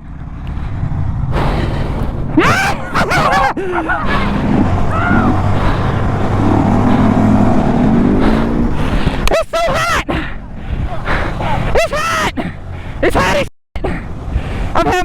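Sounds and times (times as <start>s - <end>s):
mini bike engine running: 0.0s - 8.9s
wind over microphone: 0.0s - 9.4s, 10.0s - 11.8s, 14.0s - 14.8s.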